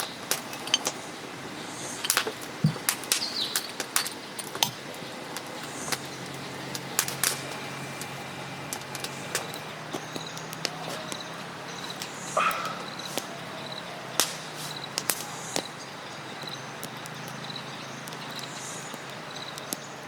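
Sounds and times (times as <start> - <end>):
campfire crackling and popping: 0.0 - 20.0
insect chirping: 4.8 - 20.0.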